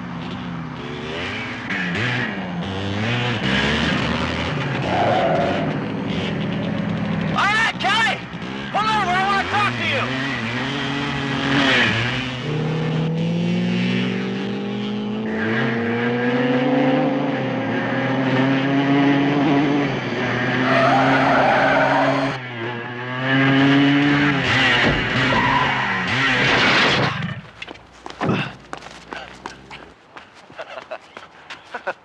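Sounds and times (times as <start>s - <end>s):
motorcycle engine accelerating: 0.0s - 7.4s, 10.1s - 20.6s, 22.8s - 29.9s
tyres skidding: 0.3s - 13.0s, 19.6s - 32.0s
car engine accelerating: 8.2s - 29.9s.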